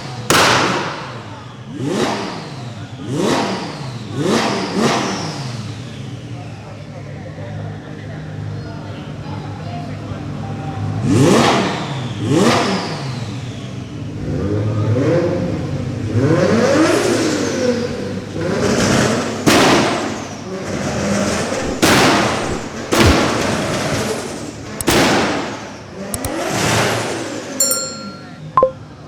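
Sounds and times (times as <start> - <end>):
sharp cracks: 21.5 - 26.4.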